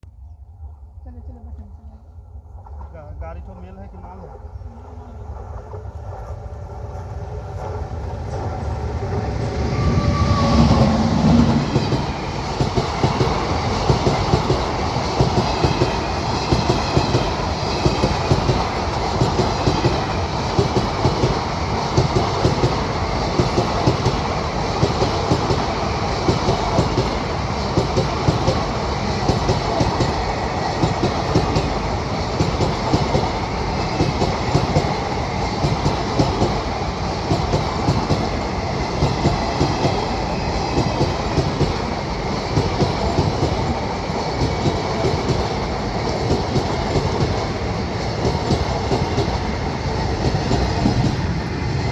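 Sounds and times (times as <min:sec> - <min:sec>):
train passing close by: 0:00.1 - 0:51.9
wheels clacking over rail joints: 0:05.4 - 0:51.7.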